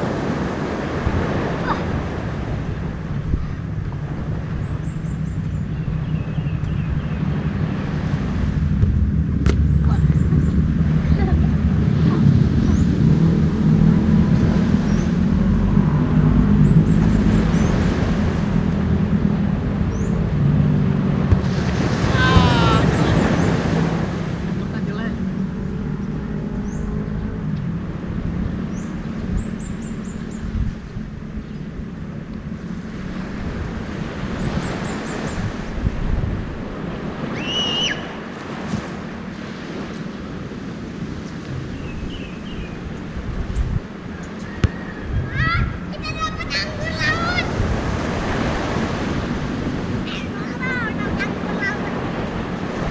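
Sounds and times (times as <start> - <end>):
engine running: 0.0 - 37.3, 37.9 - 52.9
sea washing: 0.0 - 41.9, 42.6 - 52.9
water noise: 0.0 - 52.9
wind buffeting microphone: 0.0 - 52.9
high whistling tone: 37.3 - 38.1.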